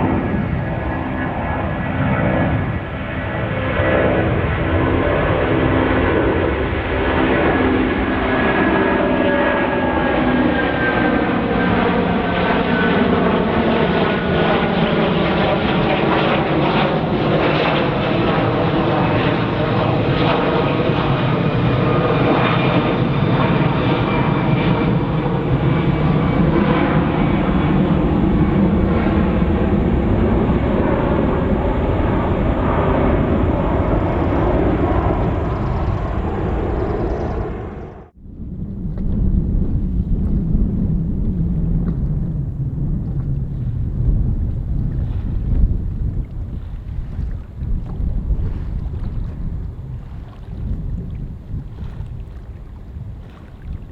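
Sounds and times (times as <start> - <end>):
jet engines at takeoff: 0.0 - 50.0.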